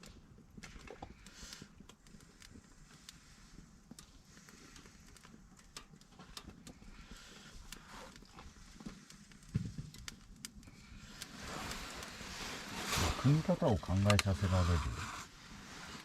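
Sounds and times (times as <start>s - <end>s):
fire crackling: 0.0s - 16.0s
firewood knocking and rustling: 8.2s - 14.7s.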